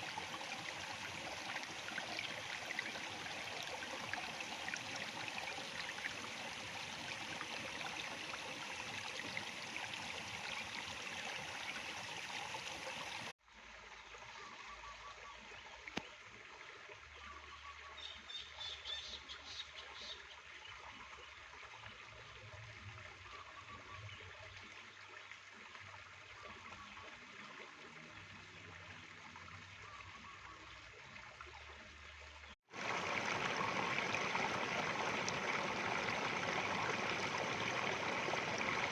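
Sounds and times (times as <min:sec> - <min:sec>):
stream flowing: 0:00.0 - 0:17.0, 0:31.2 - 0:38.9.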